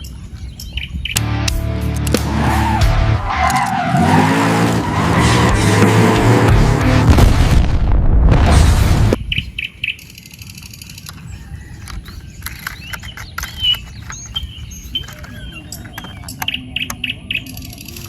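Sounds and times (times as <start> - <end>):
small birds chirping: 0.0 - 1.2, 9.2 - 18.0
loud noisy sound: 1.2 - 9.2.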